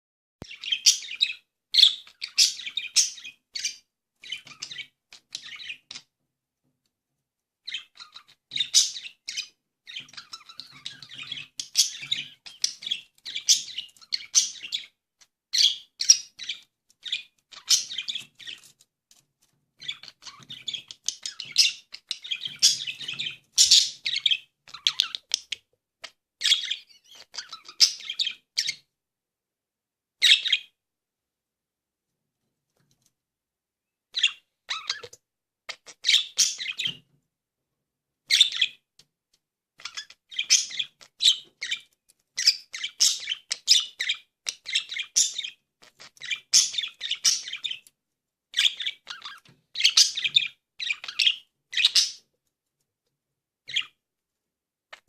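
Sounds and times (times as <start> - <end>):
budgerigars chirping and warbling: 0.4 - 6.1, 7.6 - 18.8, 19.8 - 28.9, 30.2 - 30.8, 34.2 - 37.1, 38.3 - 38.8, 39.8 - 47.9, 48.5 - 52.3, 53.7 - 54.0.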